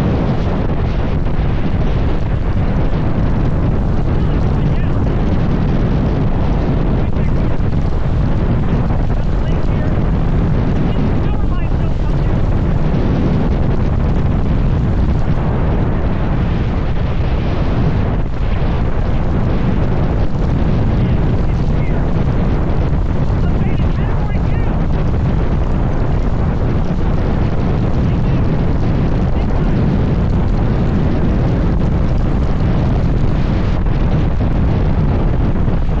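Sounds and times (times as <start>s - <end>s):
strong wind buffeting microphone: 0.0s - 36.0s.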